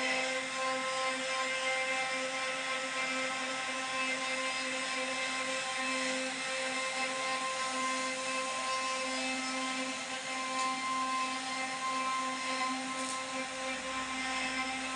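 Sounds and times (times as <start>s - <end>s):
bit carving wood: 0.0s - 14.9s
router spindle whining: 0.0s - 14.9s.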